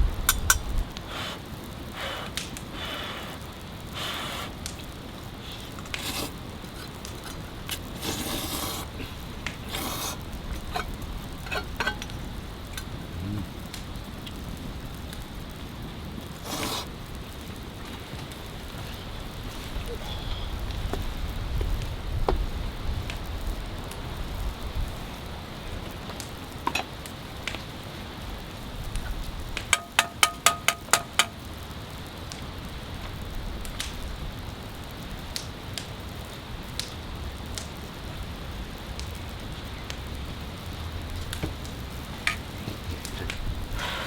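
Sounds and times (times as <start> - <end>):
steady rain falling: 0.0 - 44.0
sharp drips and ticks: 0.1 - 44.0
sharp metallic clicks: 29.6 - 31.4.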